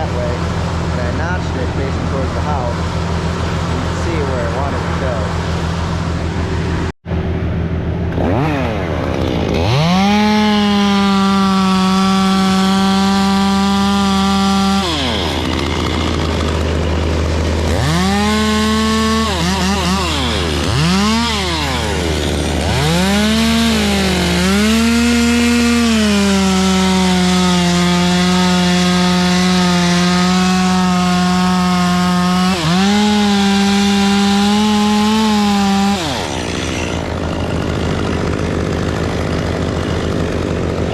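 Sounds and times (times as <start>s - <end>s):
chainsaw cutting wood: 0.0s - 6.9s, 8.1s - 40.9s
low engine hum: 0.0s - 13.0s.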